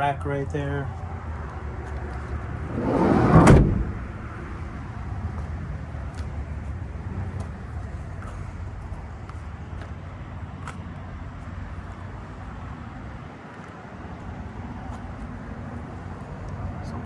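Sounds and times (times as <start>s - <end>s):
low outdoor rumble: 0.0s - 8.8s
van sliding door rolling shut: 2.4s - 5.0s
door latching clunk: 2.6s - 4.5s.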